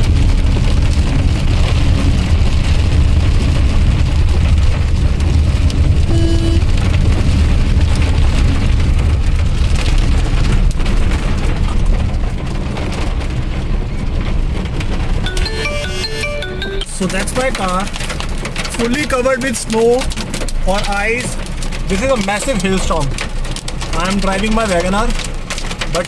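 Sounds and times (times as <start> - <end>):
hail clattering on car roof: 0.0 - 15.4, 16.9 - 26.0
deep rumble: 0.0 - 18.8.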